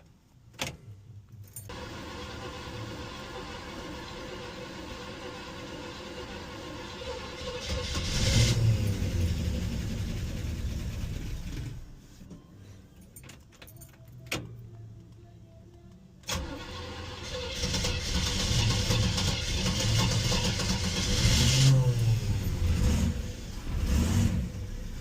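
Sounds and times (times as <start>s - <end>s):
car engine cranking and starting: 1.6s - 12.0s, 16.2s - 25.0s.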